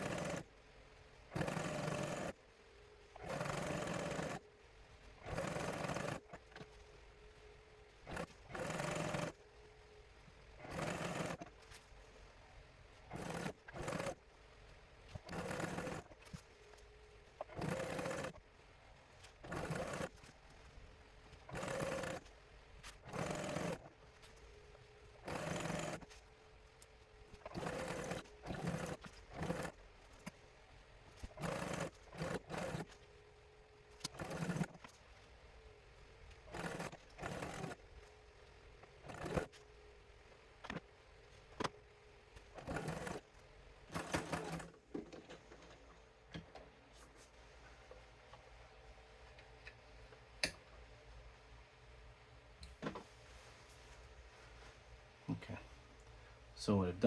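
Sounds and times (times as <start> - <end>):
sewing machine stitching: 0.0 - 0.5, 1.3 - 2.4, 3.2 - 4.4, 5.2 - 6.6, 8.0 - 9.4, 10.6 - 11.5, 13.1 - 14.2, 15.1 - 16.4, 17.4 - 18.4, 19.4 - 20.3, 21.5 - 22.3, 23.0 - 23.9, 25.2 - 26.2, 27.4 - 30.3, 31.2 - 33.0, 34.0 - 35.0, 36.5 - 37.8, 38.9 - 39.6, 42.5 - 43.3, 43.9 - 45.8
faint steady hum: 0.0 - 57.0.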